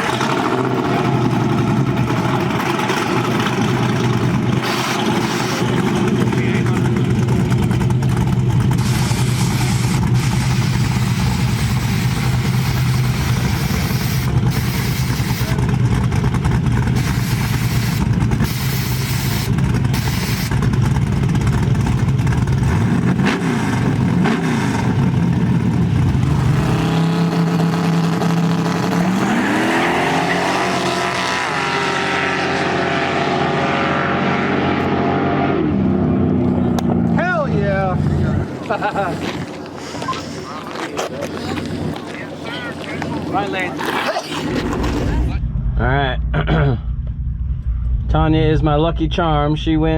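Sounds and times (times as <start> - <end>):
turbocharged engine running steadily: 0.0 - 38.6
truck engine accelerating hard: 0.0 - 49.9.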